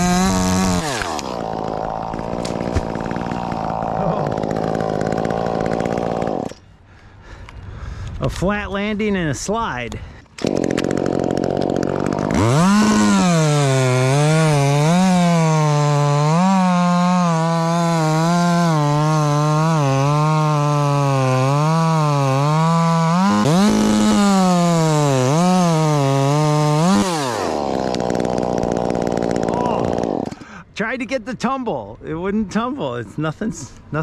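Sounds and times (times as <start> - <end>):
chainsaw cutting through wood: 0.0 - 6.6, 10.4 - 30.5.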